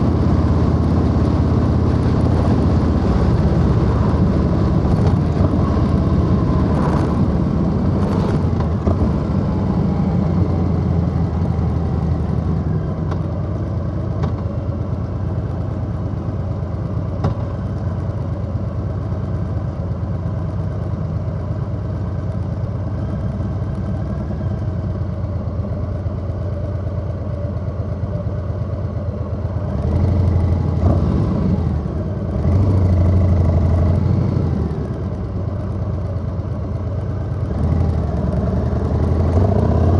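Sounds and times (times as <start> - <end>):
motorcycle engine cruising: 0.0 - 16.0, 28.1 - 39.9.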